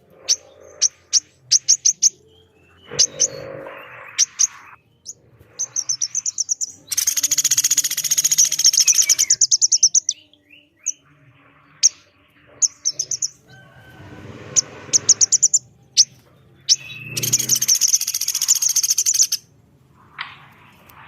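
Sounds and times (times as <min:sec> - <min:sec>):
bird chips: 0:00.0 - 0:19.5
bird rattling trills: 0:02.9 - 0:10.1, 0:16.7 - 0:19.4.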